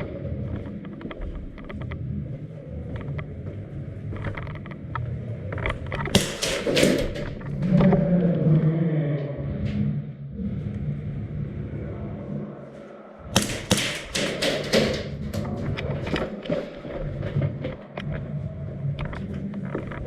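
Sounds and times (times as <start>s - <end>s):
airsoft guns firing: 6.1s - 7.4s, 13.4s - 15.2s.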